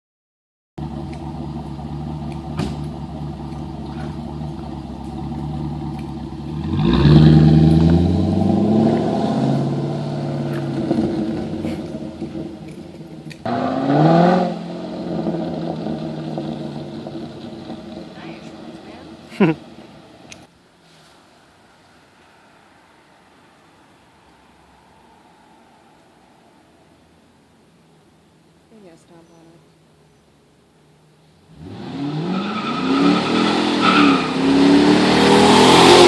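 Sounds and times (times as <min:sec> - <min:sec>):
car engine idling and revving: 0:00.8 - 0:20.5, 0:30.8 - 0:36.0.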